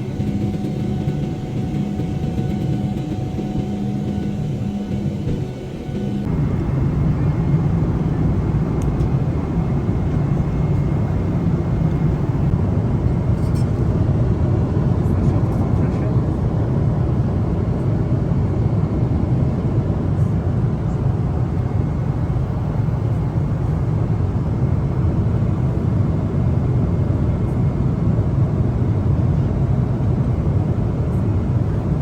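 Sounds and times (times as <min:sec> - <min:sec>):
airliner cabin engine rumble: 0:00.0 - 0:32.0.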